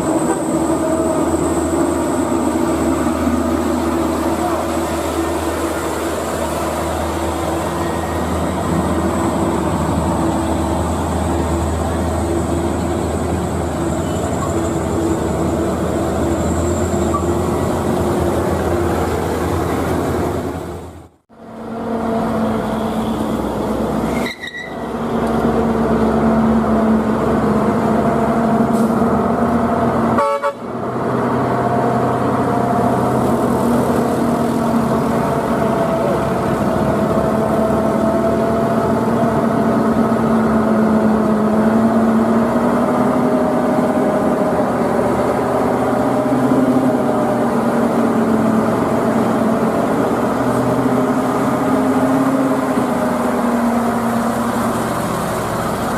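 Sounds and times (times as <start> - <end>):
heavy truck engine running: 0.0 - 55.9
truck horn toot: 30.1 - 30.7.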